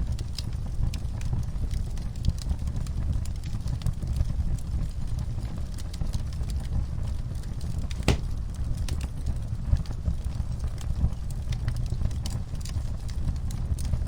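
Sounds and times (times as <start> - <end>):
wood fire crackling: 7.8 - 8.8.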